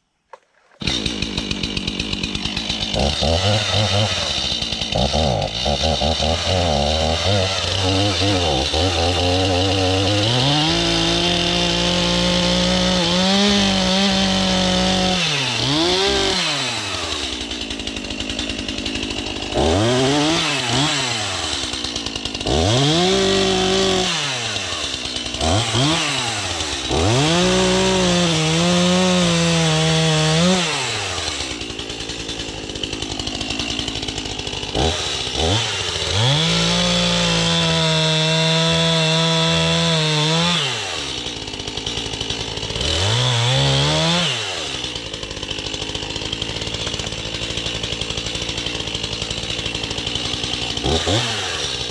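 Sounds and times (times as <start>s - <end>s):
chainsaw revving and cutting: 0.7s - 51.9s.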